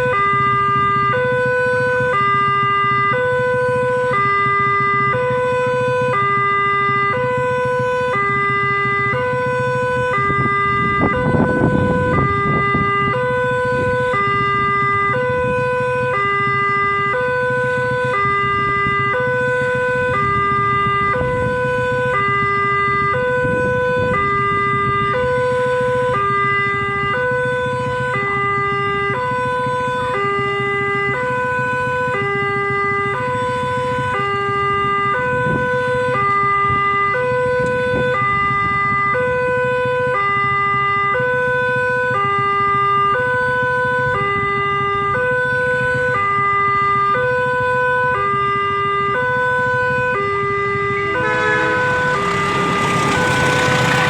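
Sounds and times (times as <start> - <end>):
traffic rumble: 50.7 - 54.0.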